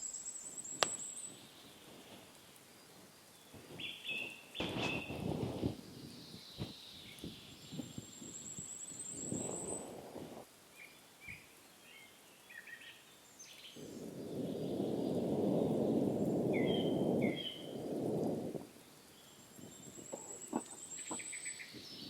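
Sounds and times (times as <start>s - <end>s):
small birds chirping: 0.0s - 22.0s
low rushing noise: 13.8s - 18.8s.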